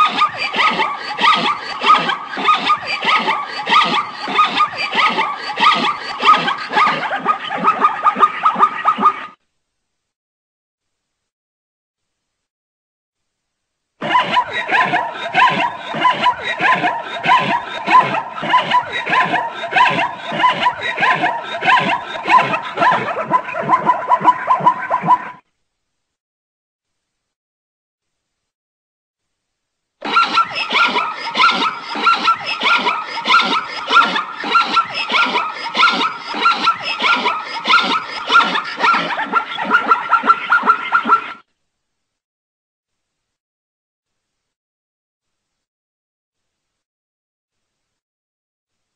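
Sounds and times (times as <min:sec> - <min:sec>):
zebra yelping barks: 0:00.0 - 0:09.3, 0:14.0 - 0:25.3, 0:30.0 - 0:41.4.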